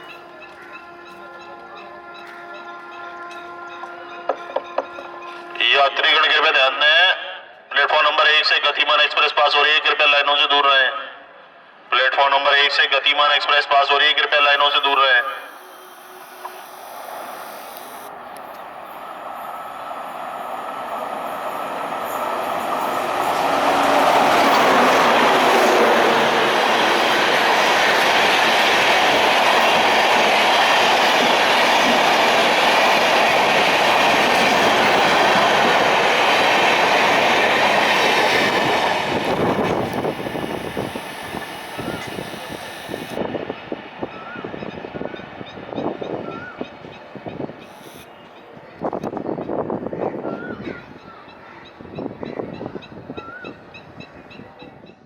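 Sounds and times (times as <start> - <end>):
train rushing past: 14.2 - 48.1.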